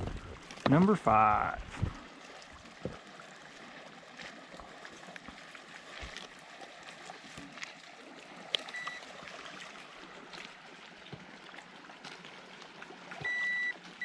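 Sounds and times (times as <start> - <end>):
water trickling and splashing: 0.0 - 14.0
digital scale beep: 8.7 - 9.0, 13.2 - 13.7.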